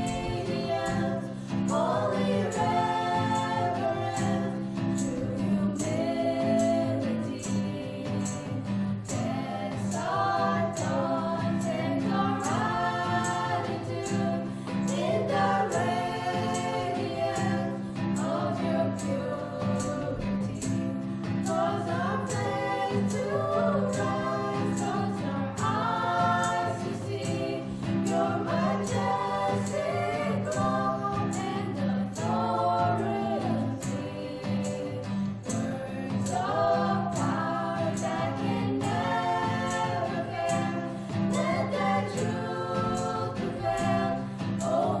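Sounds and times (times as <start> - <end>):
voices singing a church song: 0.0 - 45.0.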